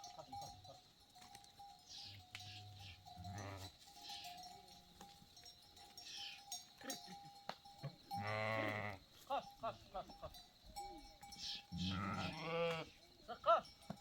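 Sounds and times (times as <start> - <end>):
faint bells clinking: 0.0 - 14.0
sheep bleat: 3.2 - 3.7, 8.1 - 9.0, 11.4 - 13.7.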